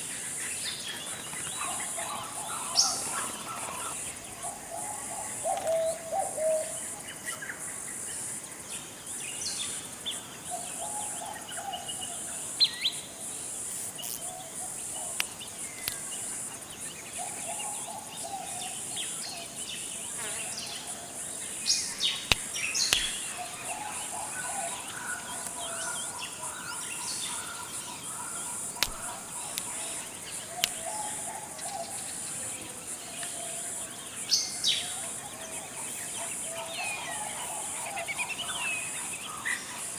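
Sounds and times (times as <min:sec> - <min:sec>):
high-pitched insect drone: 0:12.2 - 0:35.2
sharp clicks: 0:15.1 - 0:16.2, 0:21.9 - 0:23.5, 0:28.7 - 0:30.9.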